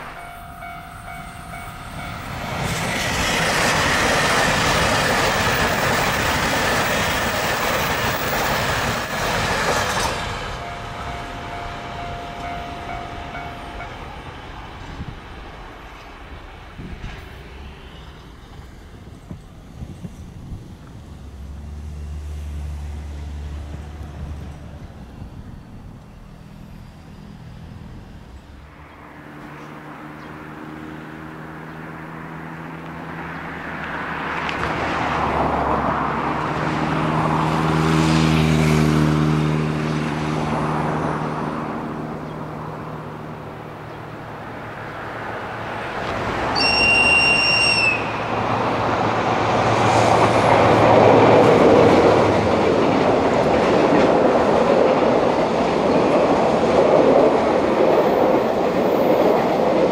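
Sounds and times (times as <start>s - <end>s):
train horn blast: 0.0s - 2.6s, 10.4s - 14.2s, 46.5s - 48.4s
diesel train engine: 0.0s - 59.9s.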